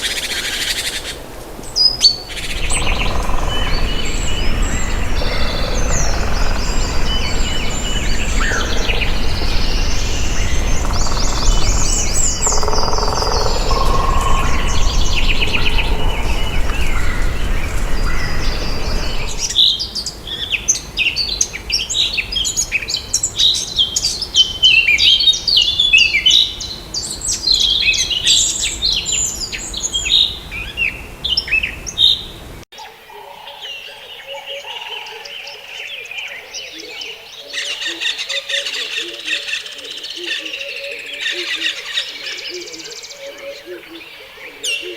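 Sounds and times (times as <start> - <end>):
birds chirping: 0.0 - 20.2
steady low rumble: 2.2 - 19.6
rapid high chirps: 2.3 - 19.5.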